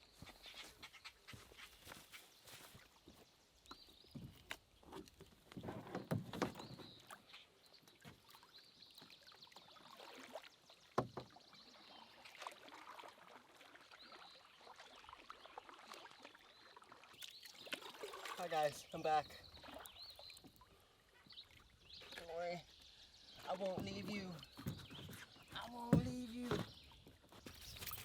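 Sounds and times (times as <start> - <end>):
paddle strokes and water splashes: 0.0 - 28.0
paddle knocking against hull: 5.6 - 7.0, 10.9 - 11.4, 23.5 - 27.1.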